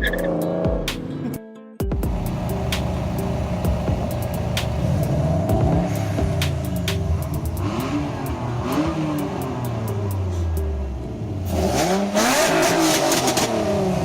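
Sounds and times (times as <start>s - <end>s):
car engine revving: 2.0s - 14.0s.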